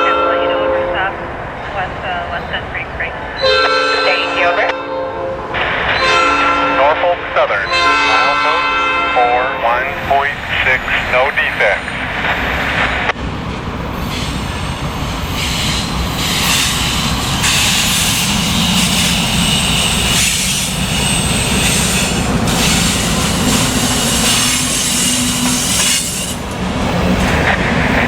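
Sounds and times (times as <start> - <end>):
train wheels clattering: 14.0 - 28.0
high-pitched wheel squeal: 17.5 - 26.6.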